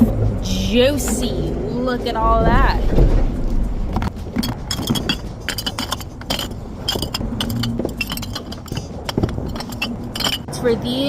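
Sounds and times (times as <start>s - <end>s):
glass bottles clinking: 4.0s - 10.6s.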